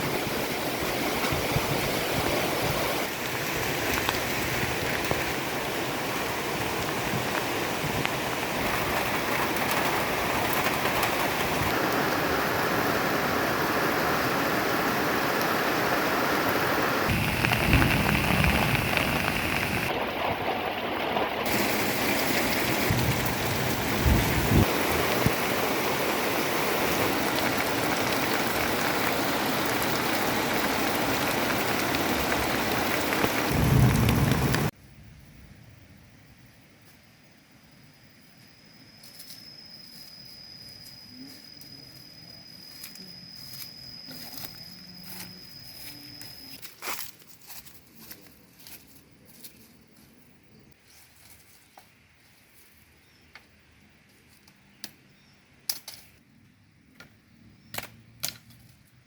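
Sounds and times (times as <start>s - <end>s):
heavy rain pouring: 0.0s - 34.7s.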